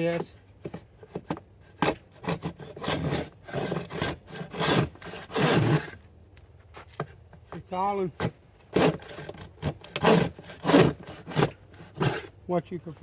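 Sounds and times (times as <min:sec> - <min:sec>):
plane rasping on wood: 0:01.8 - 0:06.0, 0:08.8 - 0:12.3.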